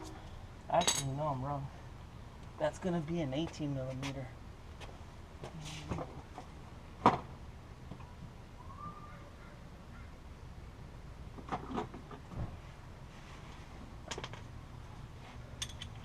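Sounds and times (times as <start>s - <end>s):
metal clank of hand tools: 0.8s - 1.2s.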